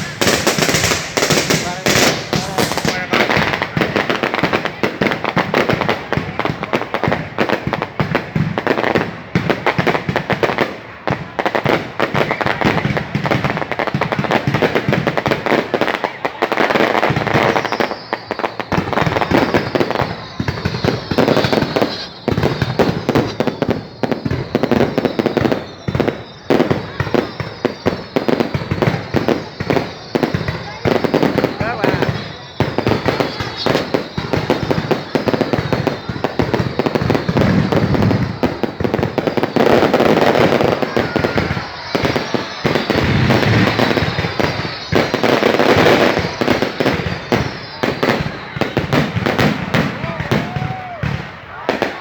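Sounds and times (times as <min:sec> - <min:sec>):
fireworks crackling and popping: 0:00.0 - 0:52.0
faint descending whistles: 0:17.3 - 0:48.8.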